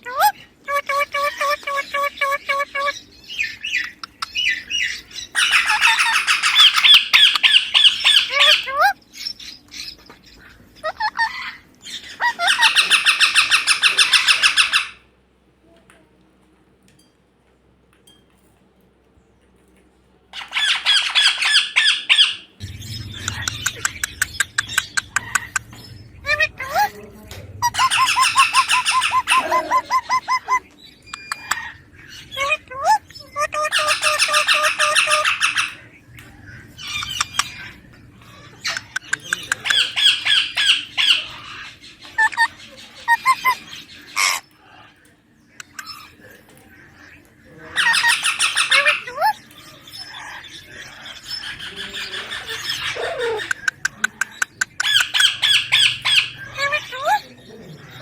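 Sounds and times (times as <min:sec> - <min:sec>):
parakeet squawking: 0:00.0 - 0:15.0, 0:20.3 - 0:44.9, 0:46.9 - 0:58.0
parrot shrill calls: 0:00.1 - 0:09.6, 0:10.8 - 0:15.0, 0:20.3 - 0:26.9, 0:27.6 - 0:35.9, 0:36.6 - 0:44.8, 0:47.7 - 0:53.6, 0:54.8 - 0:57.3.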